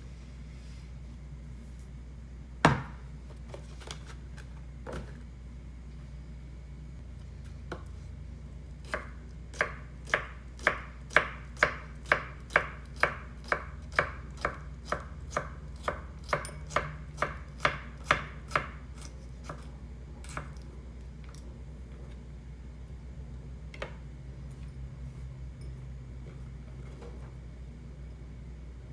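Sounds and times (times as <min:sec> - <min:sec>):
knife chopping on cutting board: 0:02.6 - 0:03.0, 0:08.8 - 0:20.6.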